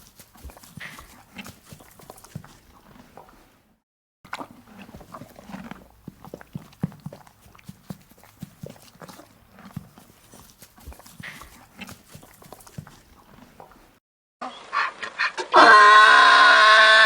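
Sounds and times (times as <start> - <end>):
donkey hooves clip-clopping: 0.0 - 3.5, 4.4 - 14.0.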